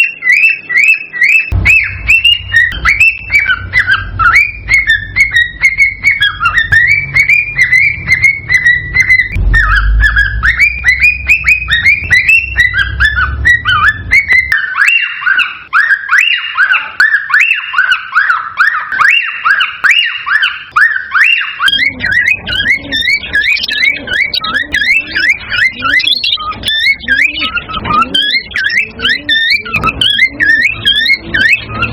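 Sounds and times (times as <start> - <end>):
cockatiels whistling and chirping: 0.0 - 31.9
low rumble: 1.5 - 4.8, 6.8 - 14.5.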